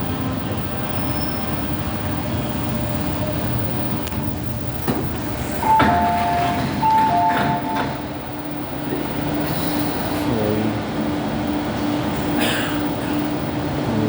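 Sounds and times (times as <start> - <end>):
train running hum: 0.0 - 14.0.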